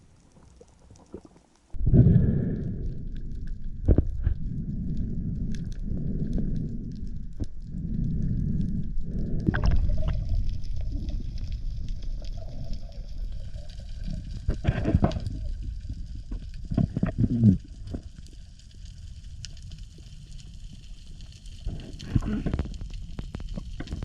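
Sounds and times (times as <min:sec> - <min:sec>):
underwater water rush: 0:00.0 - 0:20.8
bubbly gurgling bursts: 0:09.4 - 0:15.8.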